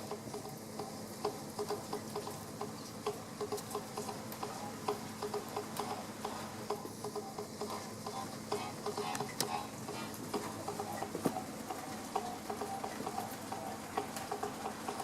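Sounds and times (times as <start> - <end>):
rain dripping and pattering: 0.0 - 15.0.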